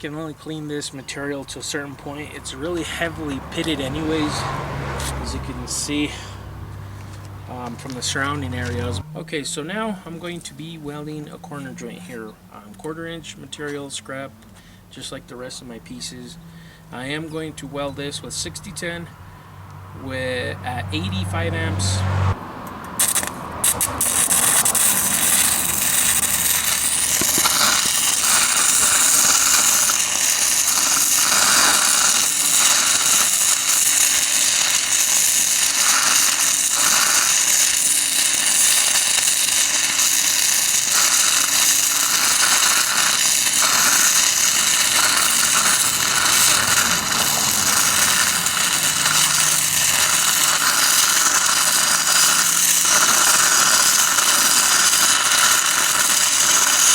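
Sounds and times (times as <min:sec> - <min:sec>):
welding arc crackling and hissing: 0:00.7 - 0:09.0, 0:20.9 - 0:56.9.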